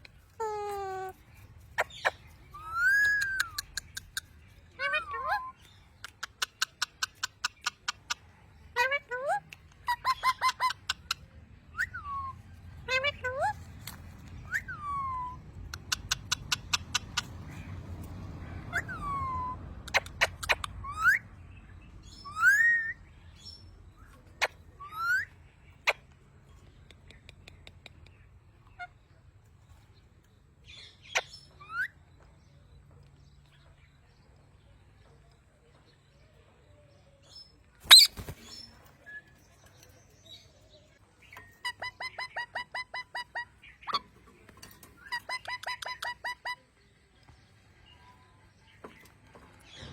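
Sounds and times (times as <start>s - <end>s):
parrot calling: 0.4s - 1.2s, 1.8s - 8.0s, 37.9s - 38.2s, 41.6s - 44.0s.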